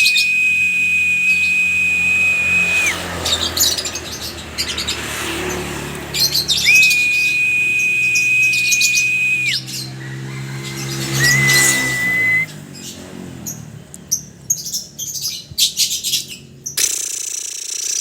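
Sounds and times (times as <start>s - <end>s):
high whistle tone dropping in pitch: 0.0s - 3.2s, 6.6s - 9.6s, 11.2s - 12.5s
lovebirds chirping: 0.0s - 5.1s, 6.2s - 9.9s.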